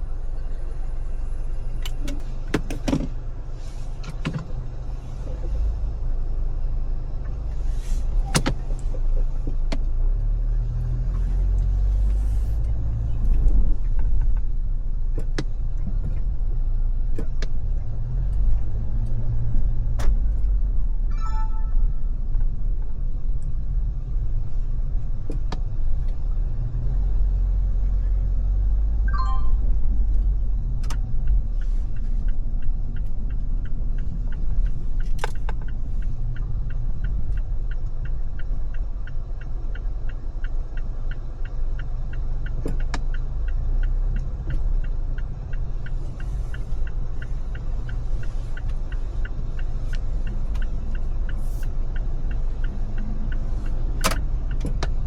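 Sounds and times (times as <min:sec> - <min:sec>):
engine and tyre rumble: 0:00.0 - 0:55.0
brief chirp: 0:21.1 - 0:22.0, 0:29.1 - 0:29.8
regular light ticking: 0:31.2 - 0:55.0.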